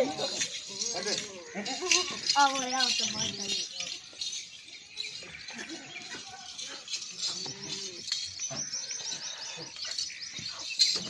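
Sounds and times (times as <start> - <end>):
small birds chirping: 0.0 - 11.0
quiet low bird calls: 3.2 - 11.0.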